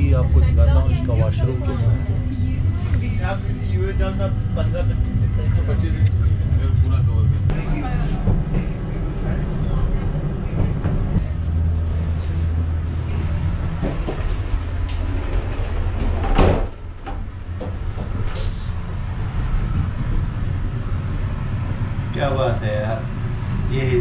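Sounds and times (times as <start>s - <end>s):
train running rumble: 0.0s - 24.0s
sliding door closing: 13.7s - 18.8s.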